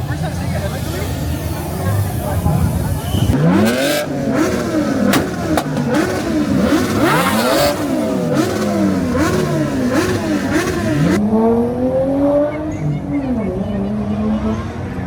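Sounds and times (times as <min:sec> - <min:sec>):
car engines revving hard: 0:00.0 - 0:15.0
sharp engine pops: 0:05.0 - 0:06.4.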